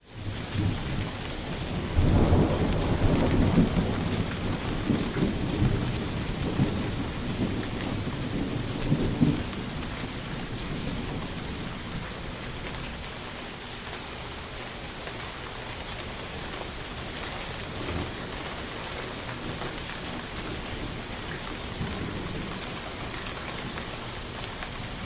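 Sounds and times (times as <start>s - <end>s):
steady rain hiss: 0.0s - 25.0s
rolling thunder rumble: 0.1s - 13.4s, 16.6s - 25.0s.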